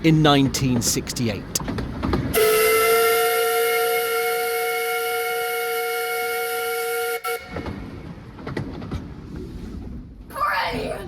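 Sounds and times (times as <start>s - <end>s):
steam locomotive whistle blast: 2.3s - 8.0s.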